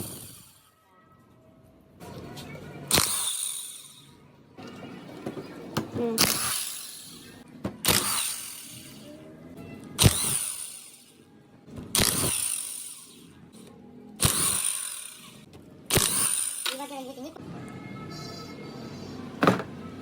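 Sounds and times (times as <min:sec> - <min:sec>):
background music: 0:00.0 - 0:20.0
tool working in short bursts: 0:06.2 - 0:07.2, 0:10.0 - 0:11.0, 0:12.0 - 0:13.2, 0:14.2 - 0:16.8.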